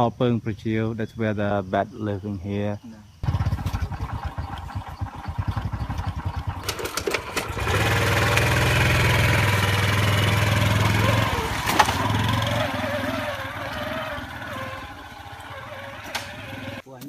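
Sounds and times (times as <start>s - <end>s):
small motorbike engine running: 3.2s - 16.8s.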